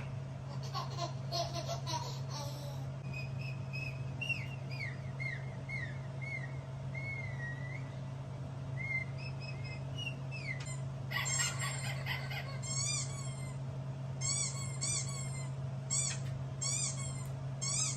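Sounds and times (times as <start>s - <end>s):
birds chirping: 0.0s - 1.4s, 2.6s - 13.6s
steady low hum: 0.0s - 17.9s
loud bird call with overtones: 8.8s - 13.6s.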